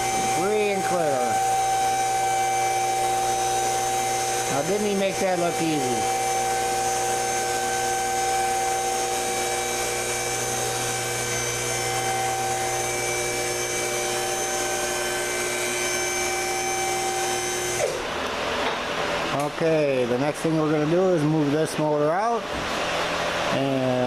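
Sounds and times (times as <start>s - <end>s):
motor whine spinning down: 0.0s - 18.2s
hydraulic pump motor running: 0.0s - 21.5s.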